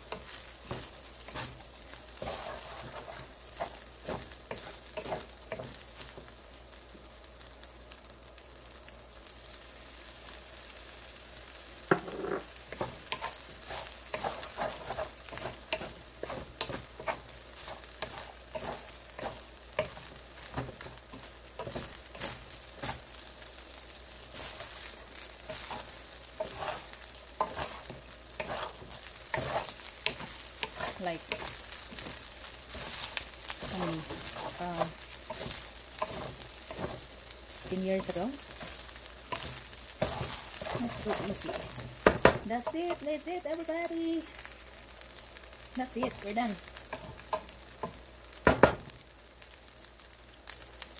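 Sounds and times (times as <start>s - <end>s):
spatula scraping and tapping pan: 0.0s - 6.3s, 11.9s - 23.1s, 24.3s - 43.0s, 45.9s - 48.8s
rice sizzling in a pan: 0.0s - 50.9s.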